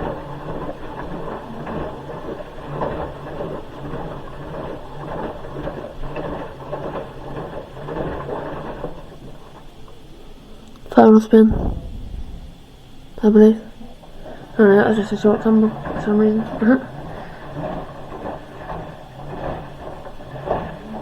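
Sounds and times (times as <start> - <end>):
washing machine drum tumbling: 11.3 - 13.5.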